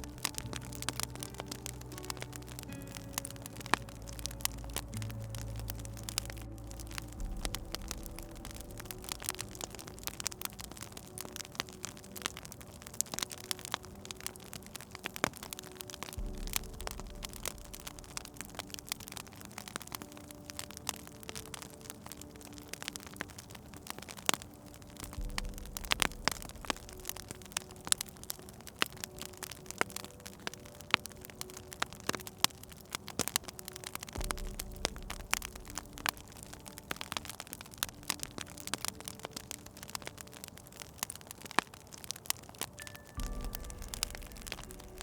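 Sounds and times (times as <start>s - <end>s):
low rumble: 0.0s - 12.3s, 15.5s - 20.0s, 25.0s - 28.4s, 34.2s - 37.1s, 43.2s - 45.0s
soft hiss: 0.0s - 45.0s
wood fire crackling and popping: 0.0s - 45.0s.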